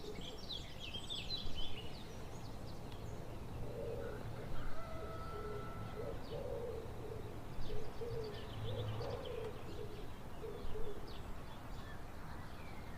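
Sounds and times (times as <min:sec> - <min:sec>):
small birds chirping: 0:00.0 - 0:04.1
dove cooing: 0:03.6 - 0:11.1.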